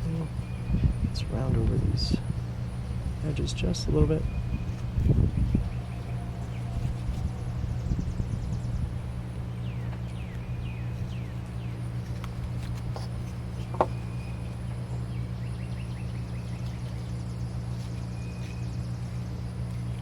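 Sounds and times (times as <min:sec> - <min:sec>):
low hum: 0:00.0 - 0:20.0
small birds chirping: 0:00.0 - 0:20.0.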